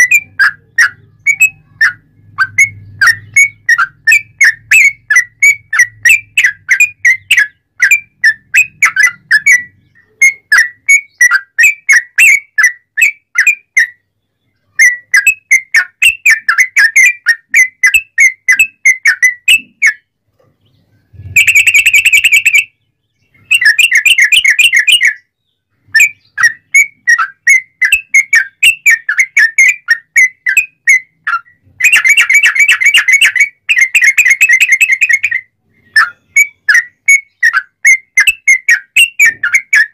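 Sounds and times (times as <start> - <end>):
bird singing whistled notes: 0.0 - 39.9
bird trilling: 0.0 - 39.9.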